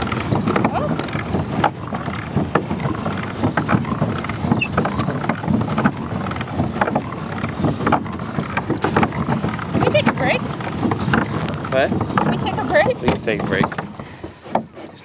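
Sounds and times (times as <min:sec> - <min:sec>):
paddle wheel churning water: 0:00.0 - 0:15.0.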